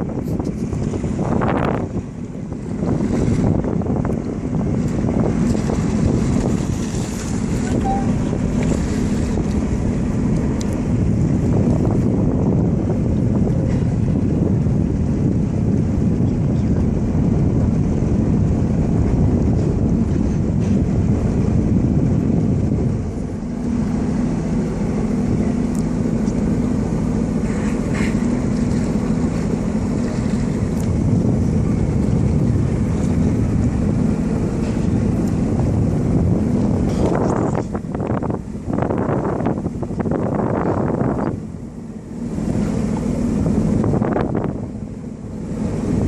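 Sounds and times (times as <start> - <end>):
jet ski engine hum: 0.0 - 46.0
rushing water: 0.0 - 46.0
wind buffeting microphone: 0.0 - 46.0.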